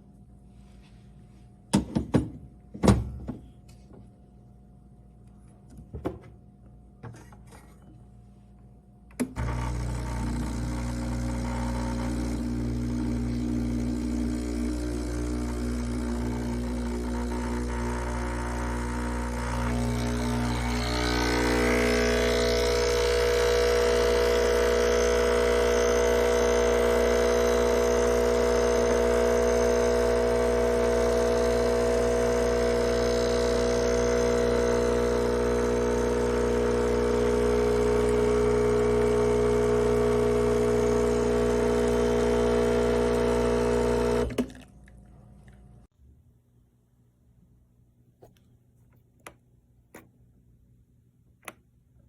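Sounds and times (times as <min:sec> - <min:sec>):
espresso machine humming: 0:09.3 - 0:44.6.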